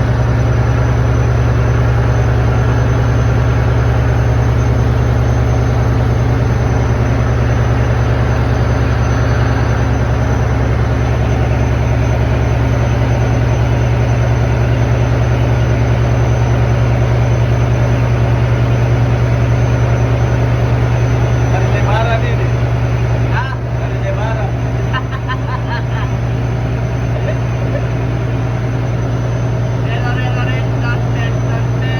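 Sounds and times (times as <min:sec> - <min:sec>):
ship diesel engine droning: 0:00.0 - 0:31.9.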